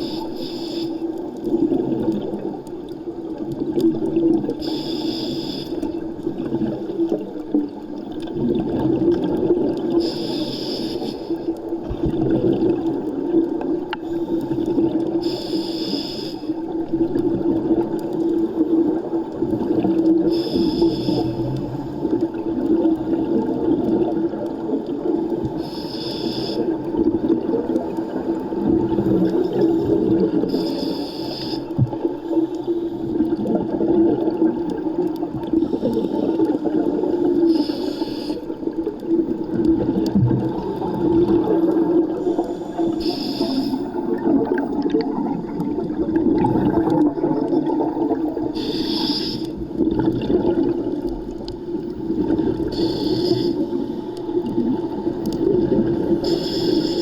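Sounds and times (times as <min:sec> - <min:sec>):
diver exhaling bubbles underwater: 0:38.8 - 0:48.6, 0:49.6 - 0:56.8.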